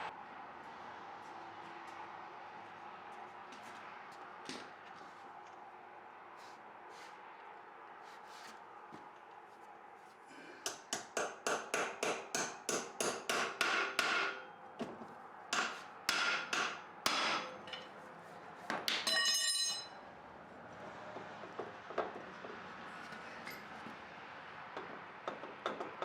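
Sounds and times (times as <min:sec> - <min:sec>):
hammer striking metal: 0:10.7 - 0:14.5, 0:15.5 - 0:18.0, 0:18.8 - 0:20.0.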